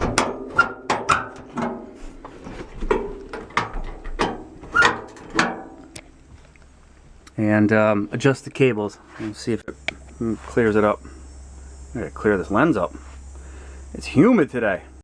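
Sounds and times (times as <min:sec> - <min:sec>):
metallic clicks and clanks: 0:00.0 - 0:06.7.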